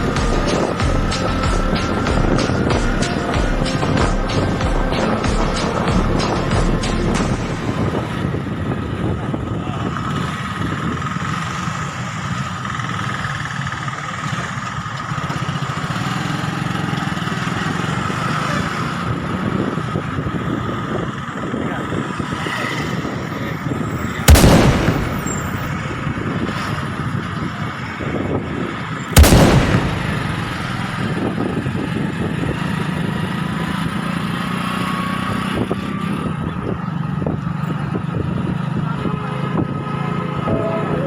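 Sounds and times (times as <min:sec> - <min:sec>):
loud bangs: 0:00.0 - 0:08.2, 0:24.2 - 0:26.8, 0:29.1 - 0:31.5.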